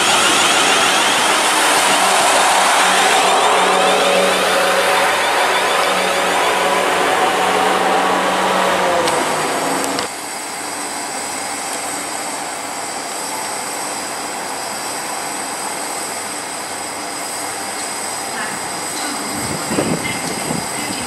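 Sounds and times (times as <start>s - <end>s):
steady tones: 0.0s - 10.1s
electric train running: 0.0s - 21.0s
thin high whine: 0.0s - 21.0s.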